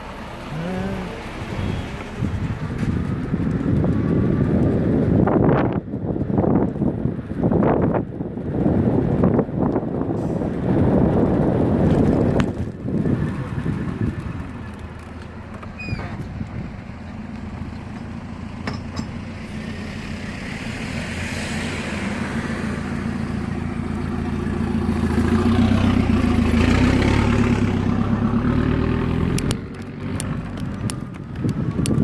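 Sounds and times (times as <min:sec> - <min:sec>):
road noise: 0:00.0 - 0:32.0
vehicle engine: 0:00.0 - 0:32.0
wind on microphone: 0:01.3 - 0:15.0, 0:15.8 - 0:17.0, 0:28.9 - 0:32.0.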